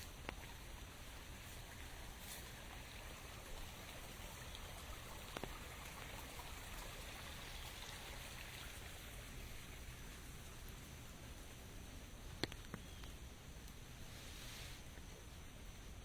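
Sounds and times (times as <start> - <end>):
steady rain falling: 0.0 - 16.0
sharp raindrop ticks: 4.4 - 6.2, 12.3 - 13.8.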